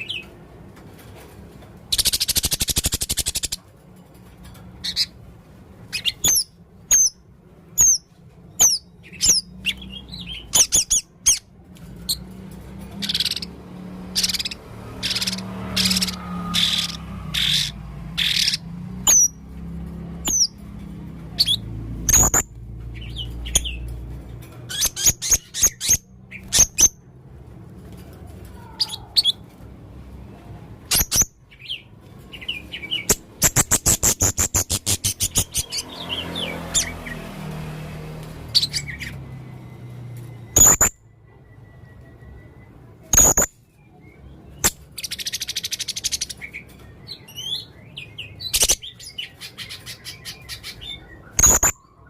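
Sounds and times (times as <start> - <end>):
parrot squeaky chirps: 1.9 - 3.6, 4.8 - 5.2, 5.8 - 7.2, 7.8 - 12.3, 12.9 - 19.4, 20.2 - 20.6, 21.2 - 23.9, 24.6 - 27.0, 30.8 - 37.0, 38.5 - 39.3, 40.5 - 41.0, 43.1 - 43.6, 44.6 - 52.0
parrot fast trill: 14.1 - 19.3, 33.1 - 35.8.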